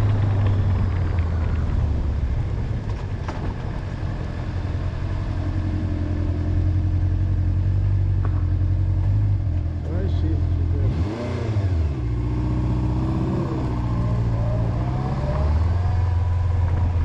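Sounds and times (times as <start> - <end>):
motorcycle engine droning: 0.0 - 17.0.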